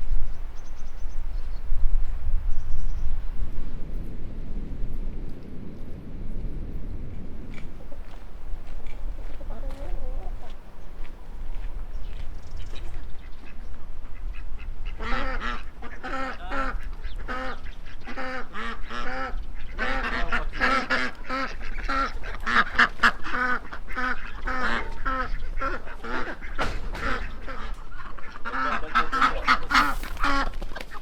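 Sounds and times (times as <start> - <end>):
fowl calling: 7.5 - 31.0.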